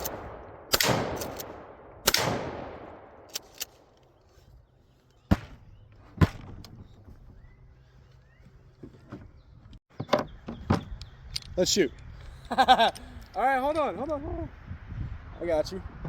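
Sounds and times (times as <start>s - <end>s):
shotgun shot: 0.0s - 3.6s.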